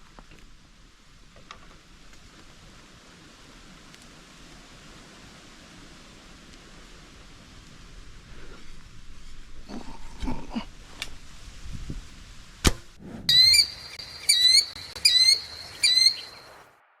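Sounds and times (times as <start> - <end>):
high-pitched bird calls: 13.3 - 16.6.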